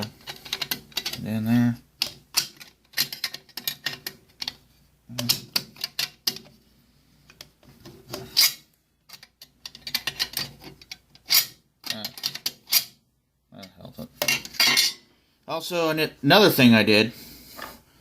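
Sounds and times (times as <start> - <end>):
metallic clicks and rattles of rifle parts: 0.0 - 1.3, 2.0 - 4.6, 5.2 - 6.6, 7.2 - 13.0.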